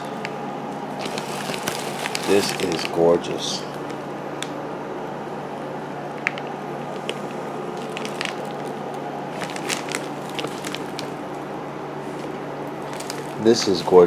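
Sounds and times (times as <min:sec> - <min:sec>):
packaging crinkling and clicking: 0:00.0 - 0:03.0, 0:06.1 - 0:11.4, 0:12.0 - 0:14.0
steady low hum: 0:00.0 - 0:14.0.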